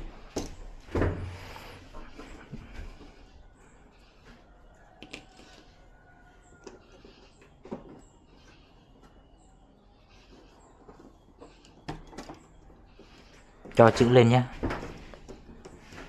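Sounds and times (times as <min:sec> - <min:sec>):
plastic parts clicking and tapping: 0:05.0 - 0:05.6, 0:10.9 - 0:12.6.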